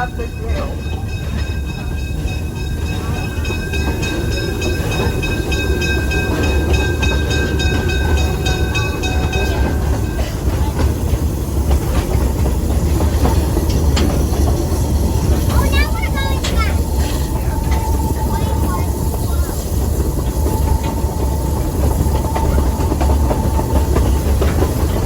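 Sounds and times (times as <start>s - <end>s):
steam train rumble: 0.0s - 25.0s
wheels clattering over rails: 0.0s - 25.0s.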